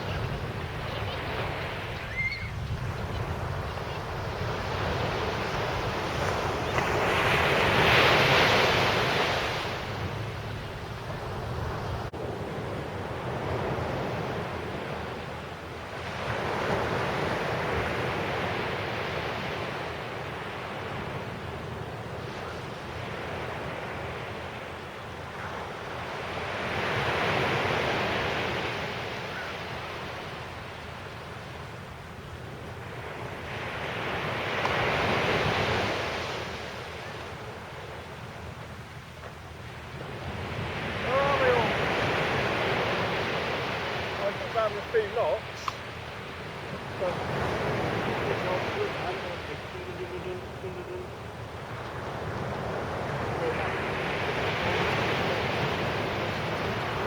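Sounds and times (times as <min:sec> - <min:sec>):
wind rumble on microphone: 0:00.0 - 0:15.1
sea waves washing onto beach: 0:00.0 - 0:57.0.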